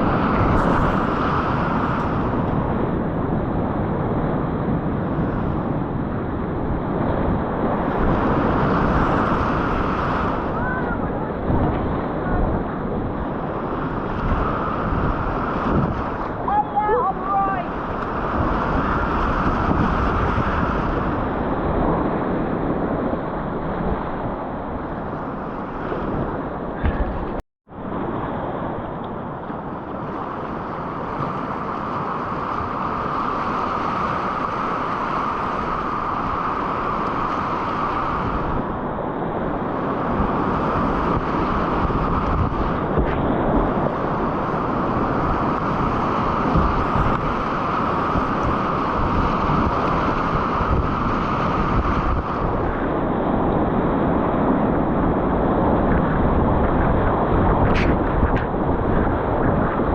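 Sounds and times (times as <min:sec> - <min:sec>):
river rushing: 0:00.0 - 0:03.7, 0:07.6 - 0:21.2, 0:26.9 - 0:55.5
wind buffeting microphone: 0:00.0 - 0:59.9.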